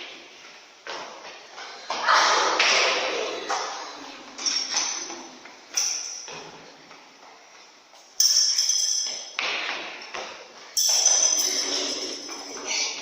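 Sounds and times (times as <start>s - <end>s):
sharp hits with high ringing: 8.2s - 9.4s, 10.8s - 13.0s.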